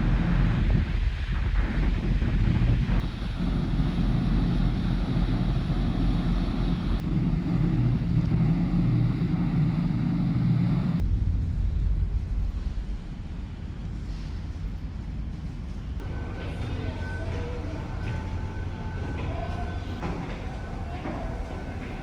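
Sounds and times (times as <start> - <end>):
low engine hum: 0.0 - 12.9
wind on microphone: 0.0 - 12.9.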